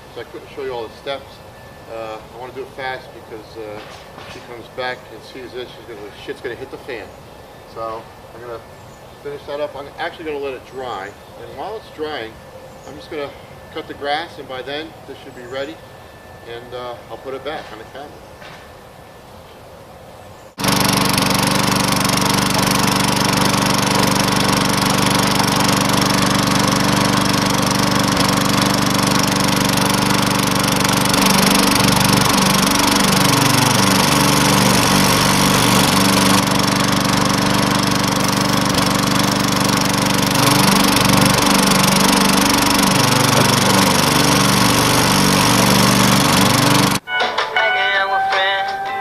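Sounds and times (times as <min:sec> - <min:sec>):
lawn mower engine running: 0:20.6 - 0:47.0.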